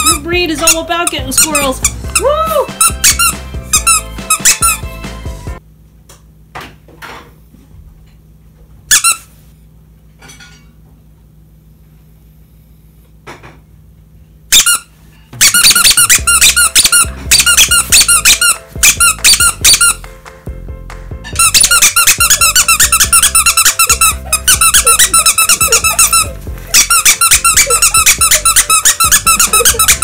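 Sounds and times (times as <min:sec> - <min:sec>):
dog toy squeaking: 0:00.0 - 0:04.9, 0:08.9 - 0:09.3, 0:14.5 - 0:20.0, 0:21.2 - 0:30.0.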